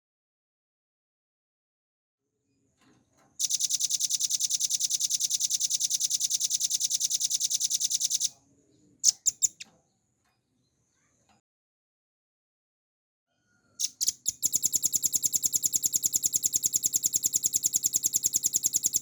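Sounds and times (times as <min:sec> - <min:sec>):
bird singing high trill: 0:13.8 - 0:19.0.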